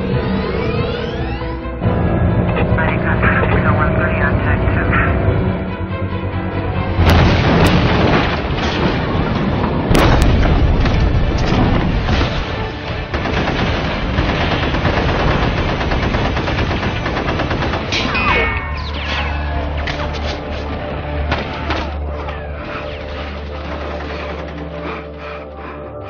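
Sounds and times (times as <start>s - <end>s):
background music: 0.0s - 26.0s
booms: 7.0s - 12.8s
rapid gunfire: 7.1s - 18.1s.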